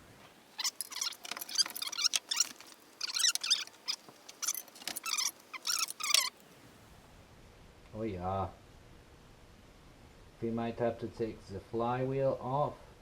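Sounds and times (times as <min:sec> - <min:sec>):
high-pitched metallic squeaks: 0:00.6 - 0:06.4.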